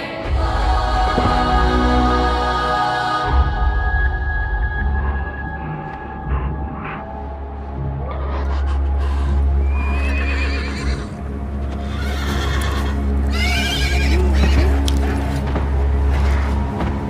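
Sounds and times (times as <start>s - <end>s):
low droning music: 0.0s - 17.0s
whinny-like animal cries: 8.1s - 11.1s, 11.8s - 14.9s.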